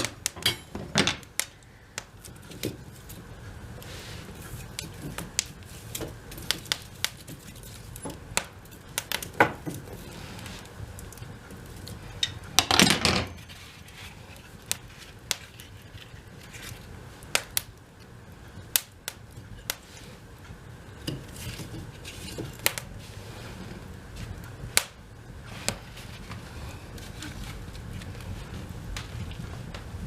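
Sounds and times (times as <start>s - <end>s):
wood fire crackling: 0.0s - 30.0s
wood being handled: 19.6s - 24.5s, 25.5s - 29.9s.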